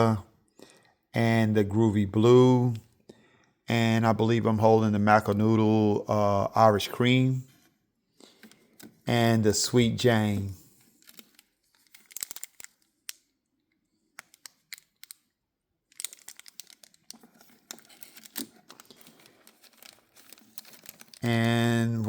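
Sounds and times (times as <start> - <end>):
cellophane crinkling: 8.2 - 22.0.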